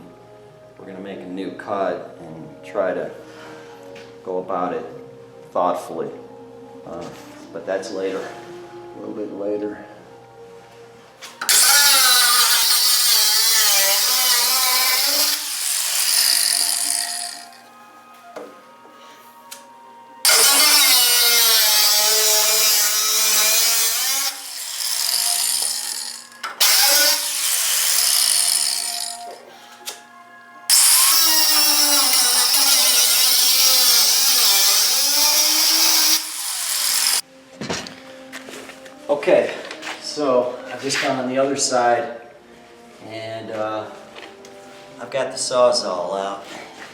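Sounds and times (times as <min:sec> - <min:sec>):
power tool cutting steel: 0:11.4 - 0:17.6, 0:20.2 - 0:29.4, 0:30.7 - 0:37.2.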